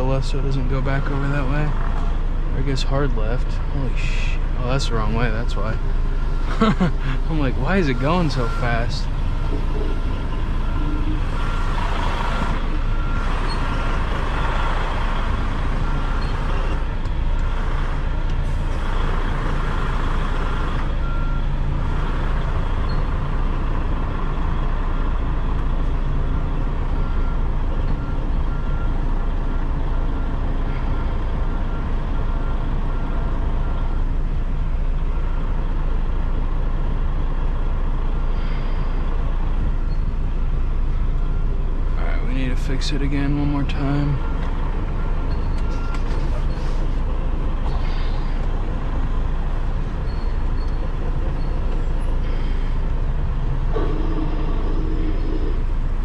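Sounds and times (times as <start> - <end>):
diesel truck engine running: 0.0 - 56.0
back-up alarm beeping: 4.1 - 17.6, 53.5 - 56.0.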